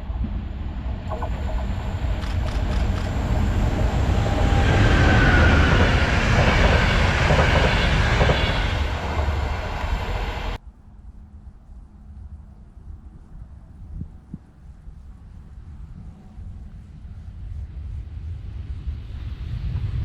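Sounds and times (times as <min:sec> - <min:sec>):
train passing on track: 0:00.0 - 0:10.6, 0:17.0 - 0:20.0.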